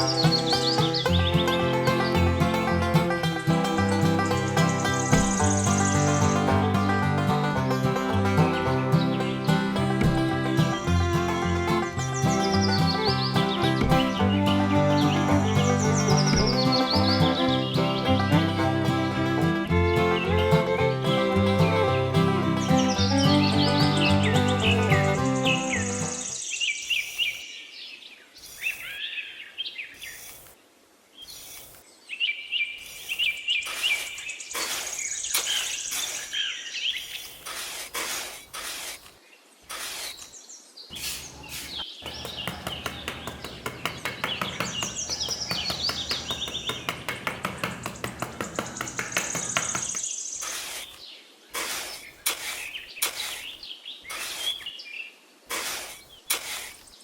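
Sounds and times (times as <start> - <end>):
sharp knocks and taps: 0.0 - 26.1, 41.1 - 50.1
birds chirping: 0.0 - 30.4, 40.0 - 51.2
fast even rattling: 41.2 - 50.0.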